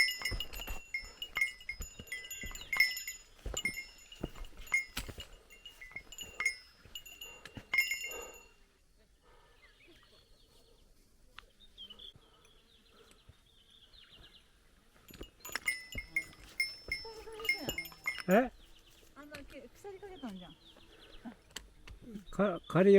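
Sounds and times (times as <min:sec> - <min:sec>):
footsteps knocking: 0:00.0 - 0:08.4, 0:15.2 - 0:18.4
small metal bell jingling: 0:00.0 - 0:08.6, 0:15.0 - 0:19.8.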